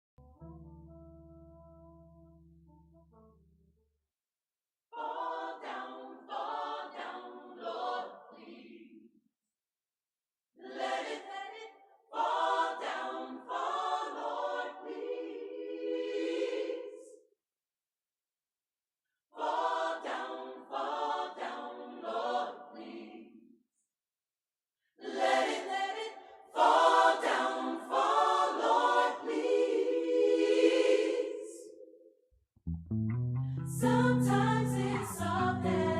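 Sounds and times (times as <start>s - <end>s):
gospel choir singing: 4.9s - 9.2s, 10.6s - 17.3s, 19.4s - 23.5s, 25.0s - 32.1s, 33.7s - 35.9s.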